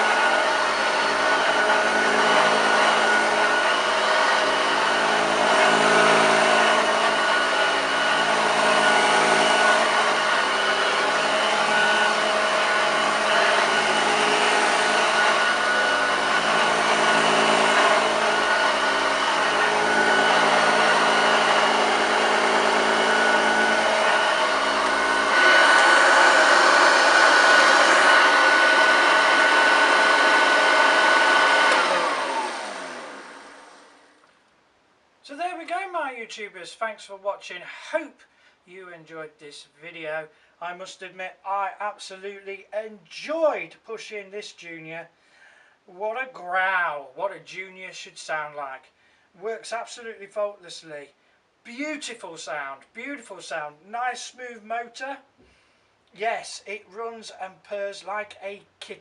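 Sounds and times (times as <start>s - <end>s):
upright vacuum cleaner running: 0.0s - 34.3s
vacuum motor winding down: 0.0s - 34.3s.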